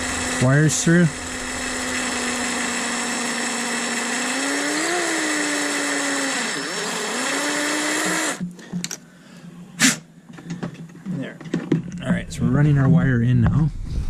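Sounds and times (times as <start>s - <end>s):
electric drill boring plastic: 0.0s - 8.5s.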